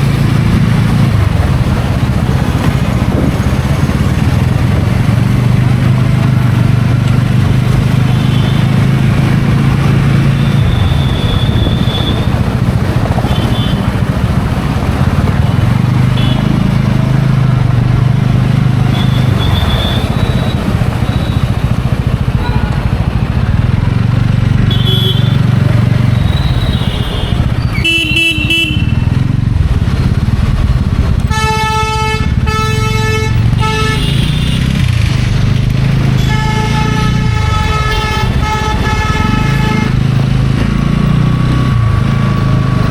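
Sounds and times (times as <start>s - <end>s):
wind noise: 0.0s - 7.9s, 8.9s - 16.2s
motorcycle engine running: 0.0s - 42.9s
vehicle horn honking: 7.9s - 9.0s, 10.2s - 12.4s, 13.2s - 14.0s, 16.1s - 16.6s, 18.8s - 21.5s, 22.3s - 23.1s, 24.7s - 29.2s, 31.3s - 34.7s, 36.2s - 40.1s.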